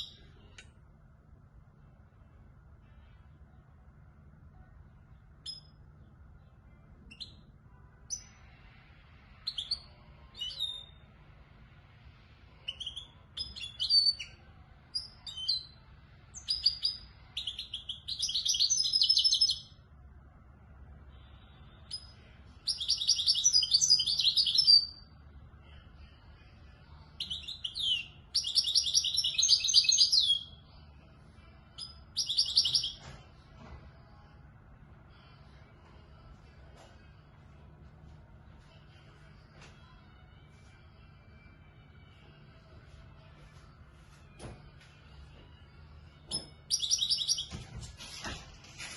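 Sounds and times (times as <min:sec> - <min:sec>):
goldfinch chirps and twitters: 0:12.6 - 0:15.8, 0:16.4 - 0:19.7, 0:21.9 - 0:25.0, 0:27.2 - 0:30.5, 0:31.8 - 0:33.1, 0:46.3 - 0:47.6.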